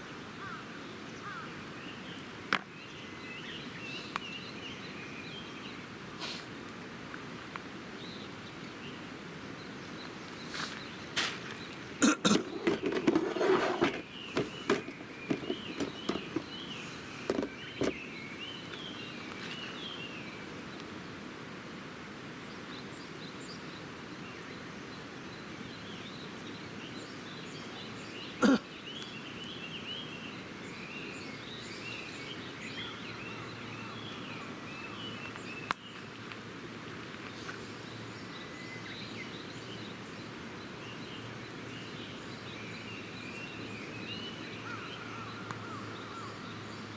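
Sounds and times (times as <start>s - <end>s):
small birds chirping: 0.0s - 21.2s, 22.4s - 46.9s
outdoor hiss: 0.0s - 46.9s
faint click: 4.0s - 4.3s
knock: 13.8s - 16.5s.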